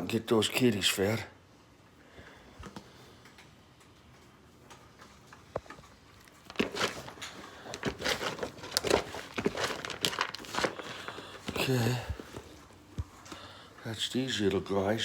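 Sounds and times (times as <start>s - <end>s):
handling rustling: 5.6s - 13.4s.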